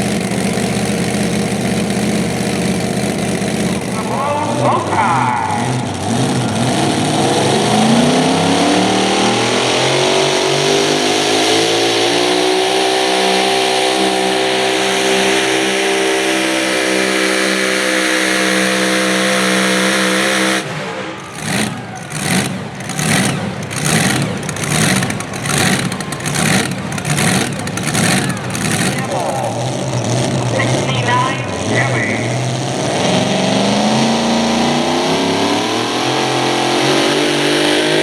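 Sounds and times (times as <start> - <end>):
rough pulsing engine: 0.0 - 38.0
truck engine at full throttle: 0.0 - 38.0.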